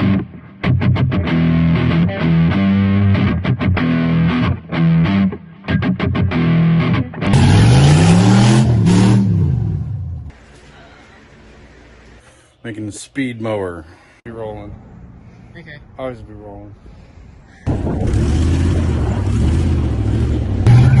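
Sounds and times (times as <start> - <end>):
distorted electric guitar riff: 0.0 - 10.3, 20.6 - 21.0.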